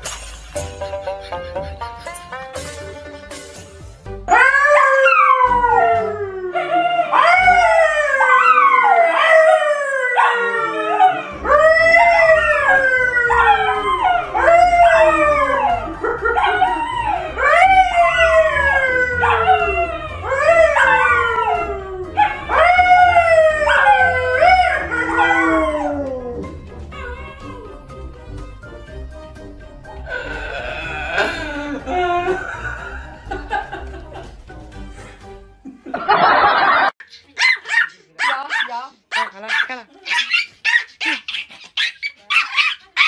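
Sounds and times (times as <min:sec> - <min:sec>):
pet howling: 0:04.3 - 0:27.8.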